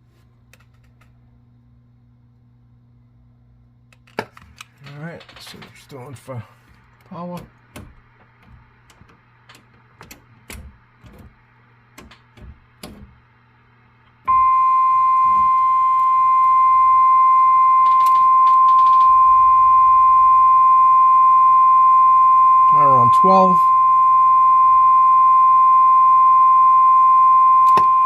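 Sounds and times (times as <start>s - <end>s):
low steady hum: 0.0s - 28.0s
steady audio test tone: 14.2s - 28.0s
switches clicking: 17.8s - 19.2s.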